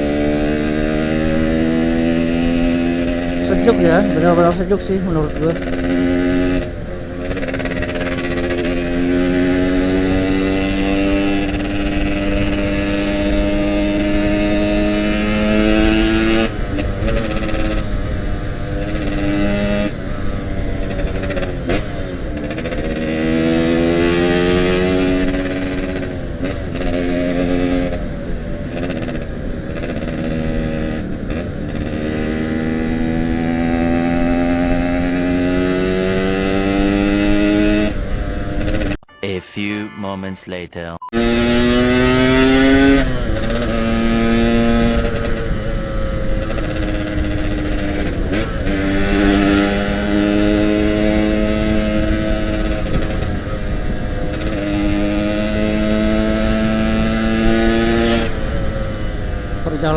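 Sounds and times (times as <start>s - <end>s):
two-stroke motorcycle engine revving: 0.0s - 39.0s, 41.1s - 59.9s.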